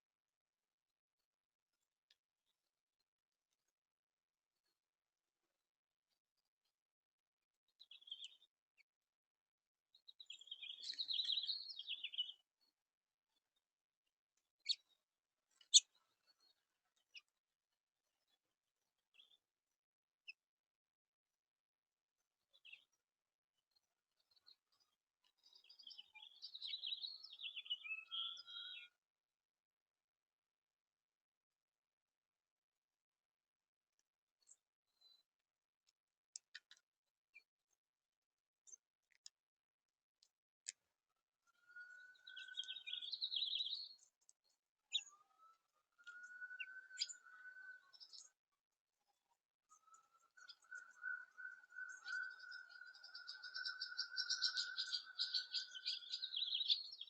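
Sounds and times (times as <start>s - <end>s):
songbird chirp: 7.5s - 9.0s, 9.9s - 20.5s, 22.2s - 29.0s, 34.0s - 37.8s, 40.2s - 57.0s
bird warbling song: 7.8s - 8.5s, 9.9s - 12.4s, 23.7s - 29.0s, 41.4s - 48.4s, 49.6s - 57.0s
faint whistle-like tone: 45.0s - 48.3s, 49.6s - 55.7s.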